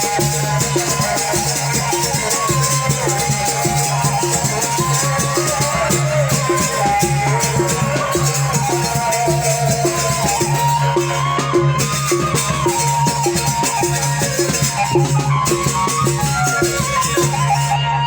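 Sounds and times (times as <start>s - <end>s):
steady percussion strokes: 0.0s - 18.0s
wavering melody: 0.0s - 18.0s.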